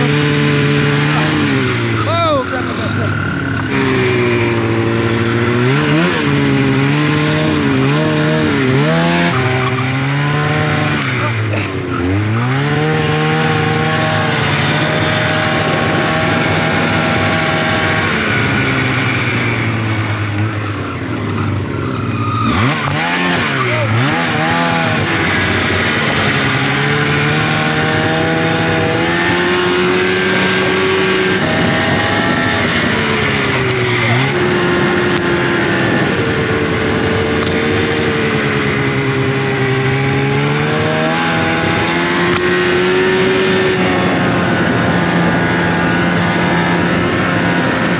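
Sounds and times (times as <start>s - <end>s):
snowmobile engine revving: 0.0s - 47.9s.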